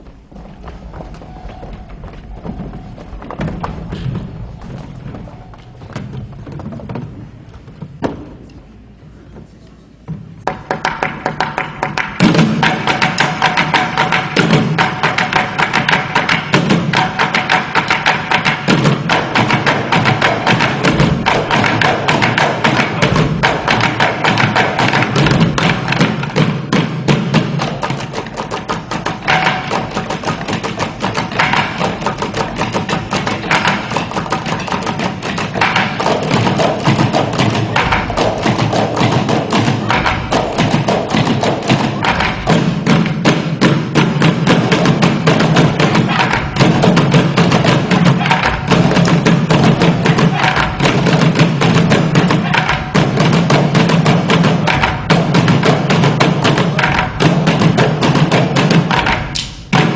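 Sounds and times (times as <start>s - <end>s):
low thumps: 0.0s - 9.4s, 10.0s - 59.9s
wood-block-like clicks: 58.8s - 59.9s.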